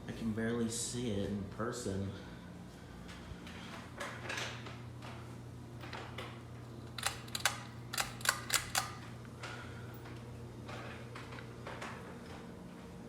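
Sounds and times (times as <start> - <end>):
ceiling fan humming: 0.0 - 13.0
sharp clicks: 7.0 - 9.0.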